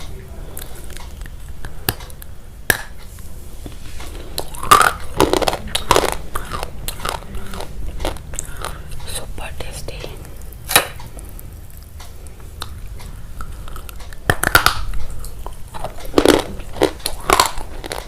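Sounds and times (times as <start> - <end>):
crunchy biting and chewing: 4.1 - 9.1, 10.2 - 18.0.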